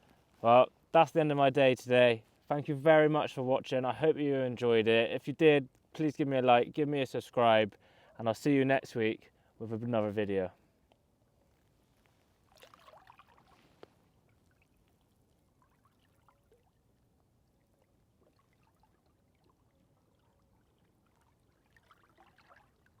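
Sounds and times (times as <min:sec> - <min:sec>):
faint trickling water: 0:07.1 - 0:23.0.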